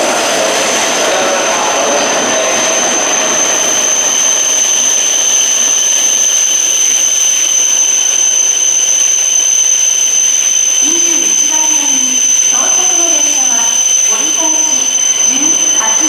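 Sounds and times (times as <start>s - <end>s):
train cars rushing past: 0.0s - 7.6s
high steady whine: 0.0s - 16.0s.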